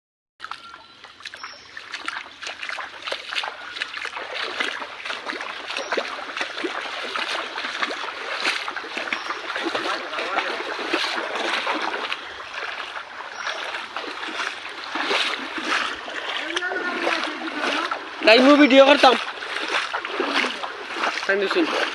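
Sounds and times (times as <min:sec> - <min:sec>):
rushing water: 0:00.4 - 0:21.9
water splashing: 0:00.4 - 0:21.9.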